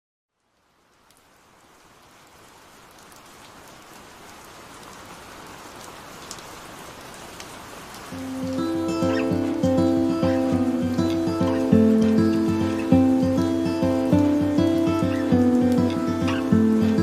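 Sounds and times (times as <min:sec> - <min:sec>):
steady rainfall: 0:00.3 - 0:17.0
raindrops ticking: 0:00.4 - 0:17.0
music: 0:08.2 - 0:17.0.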